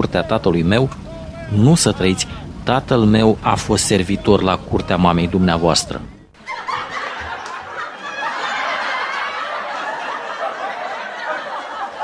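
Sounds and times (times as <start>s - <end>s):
audience laughter: 6.4s - 12.0s.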